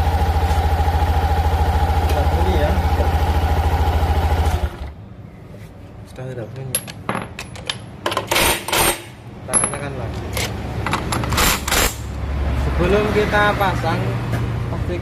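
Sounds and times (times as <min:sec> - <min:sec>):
scooter engine idling: 0:00.0 - 0:05.0
metal tools clinking and scraping: 0:06.7 - 0:12.1.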